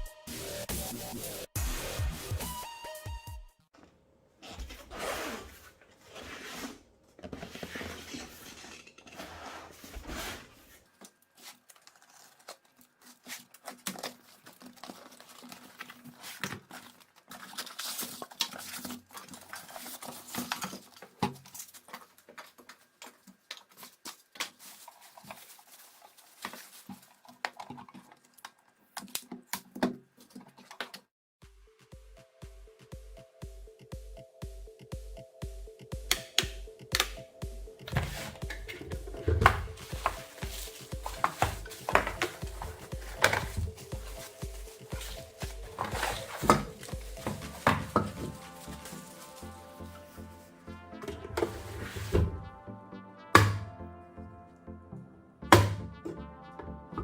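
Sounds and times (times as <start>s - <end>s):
parts clattering on hard surface: 5.9s - 10.8s, 37.8s - 49.3s
packaging rustling: 9.7s - 29.2s, 37.8s - 50.6s.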